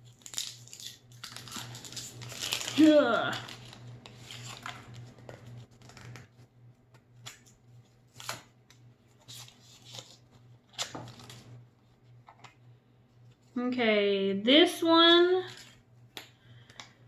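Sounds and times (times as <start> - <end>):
plastic toy packaging handled: 0.0 - 6.3, 9.2 - 11.5.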